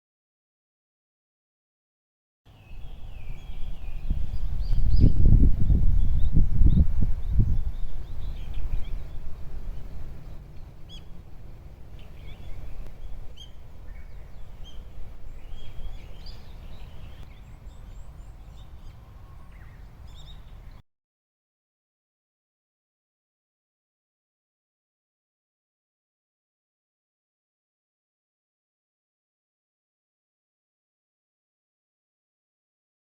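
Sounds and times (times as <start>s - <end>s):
small birds chirping: 2.5s - 20.8s
wind rumble on microphone: 2.5s - 20.8s.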